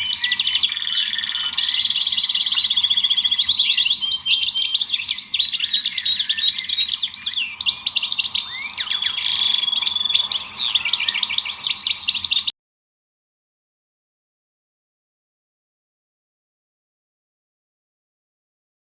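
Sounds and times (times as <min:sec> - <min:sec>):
songbirds chirping and trilling: 0:00.0 - 0:12.5.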